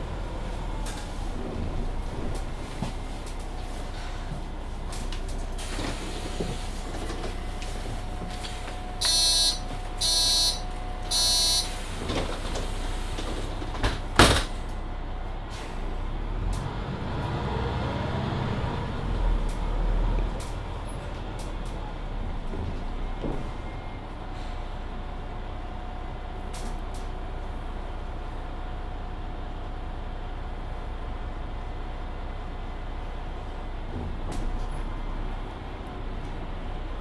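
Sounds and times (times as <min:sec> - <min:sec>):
bus doors shutting with knock: 0:00.0 - 0:14.9, 0:19.0 - 0:25.3
bus drive rising in pitch: 0:05.3 - 0:13.6, 0:15.4 - 0:24.9
short warning beeps: 0:09.0 - 0:11.9.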